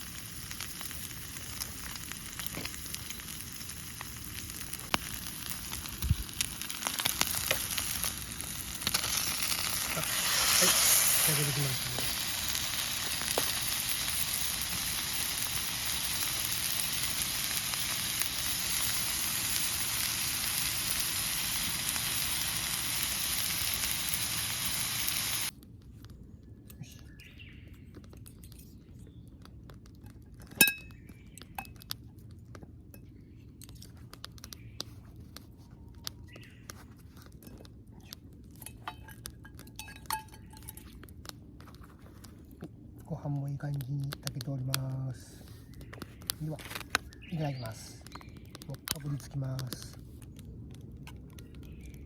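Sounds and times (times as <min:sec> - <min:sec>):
food sizzling in a pan: 0:00.0 - 0:25.5
sharp clink: 0:30.6 - 0:31.0.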